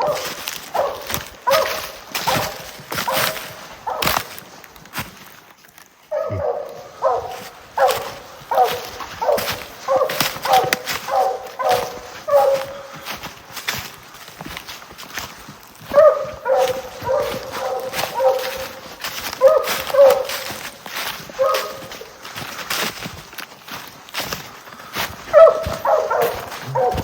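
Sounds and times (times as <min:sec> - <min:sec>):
hounds barking: 0:00.0 - 0:04.6, 0:06.0 - 0:23.0, 0:23.8 - 0:27.0.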